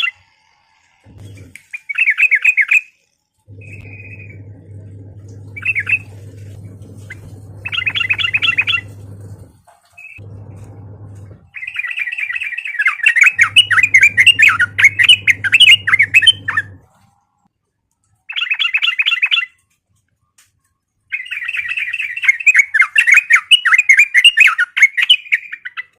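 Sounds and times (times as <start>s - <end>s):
low steady hum: 0.1s - 1.7s, 3.5s - 11.6s, 13.3s - 17.4s
bird warbling song: 3.6s - 10.2s, 11.1s - 16.8s, 18.3s - 19.6s, 21.1s - 26.0s.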